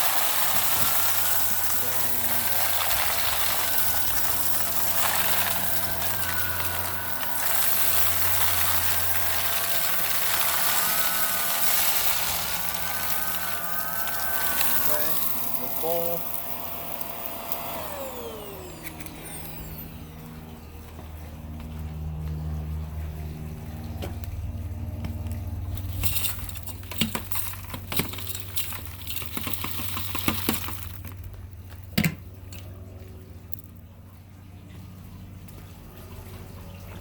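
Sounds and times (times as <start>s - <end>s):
dry debris clicking and rattling: 0.0s - 17.8s, 25.1s - 32.8s
vacuum cleaner motor whine: 0.0s - 31.4s
low steady hum: 0.0s - 37.0s.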